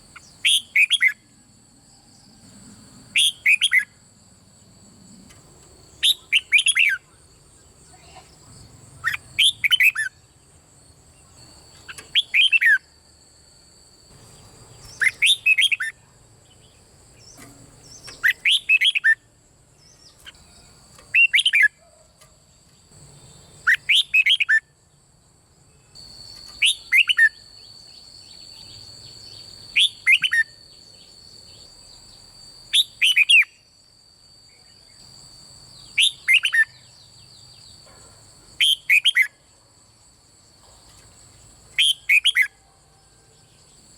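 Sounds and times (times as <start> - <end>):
bird singing whistled phrases: 0.2 - 1.2, 3.2 - 3.9, 6.0 - 7.0, 9.0 - 10.2, 11.9 - 12.8, 14.9 - 16.0, 17.4 - 19.3, 21.1 - 21.8, 23.6 - 24.7, 26.5 - 27.7, 29.7 - 30.6, 32.7 - 33.6, 36.0 - 36.9, 38.6 - 39.4, 41.8 - 42.6.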